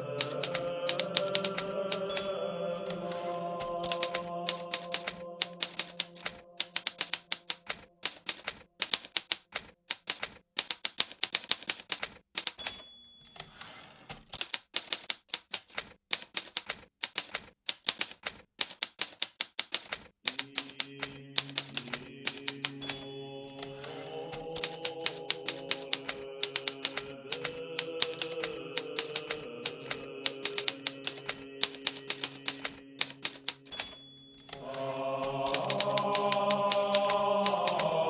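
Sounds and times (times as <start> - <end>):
typewriter keystrokes: 0.0 - 38.0
typewriter margin bell: 0.2 - 9.3, 10.0 - 15.2, 21.4 - 27.0, 27.8 - 34.8, 35.5 - 37.8.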